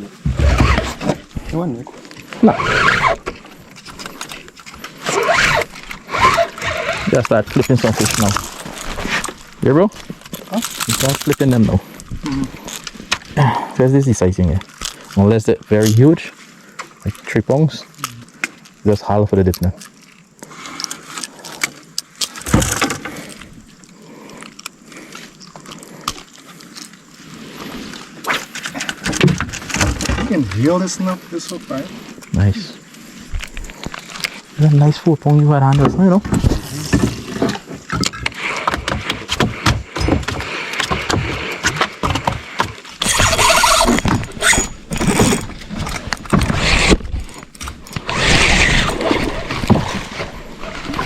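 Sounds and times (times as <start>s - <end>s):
fishing gear knocking and rattling: 0.2s - 13.3s, 21.0s - 24.8s, 28.3s - 30.7s, 35.3s - 51.0s
fishing tackle clicks and rattles: 3.2s - 13.3s.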